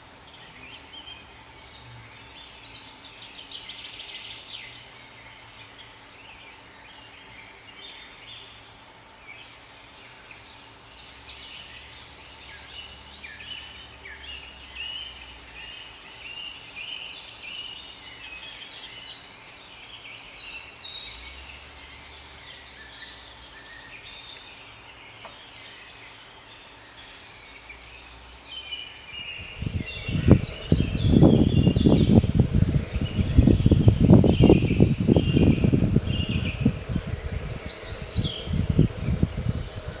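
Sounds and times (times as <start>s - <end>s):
small birds chirping: 0.0s - 40.0s
faint low hum: 26.8s - 40.0s.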